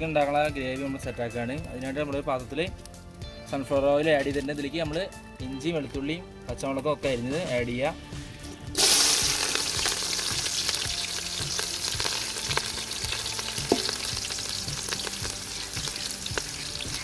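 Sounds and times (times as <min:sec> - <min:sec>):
vegetables sizzling in hot oil: 0:08.7 - 0:17.0.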